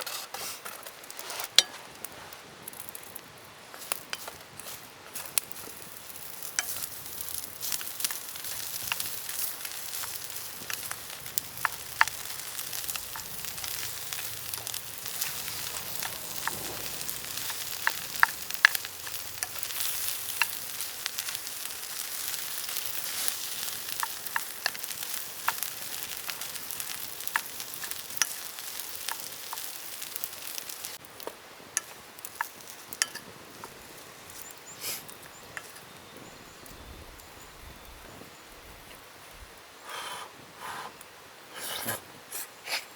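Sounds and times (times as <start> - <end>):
spatula scraping a pan: 0.0 - 1.8, 3.8 - 30.3
rice sizzling in a pan: 0.0 - 39.3.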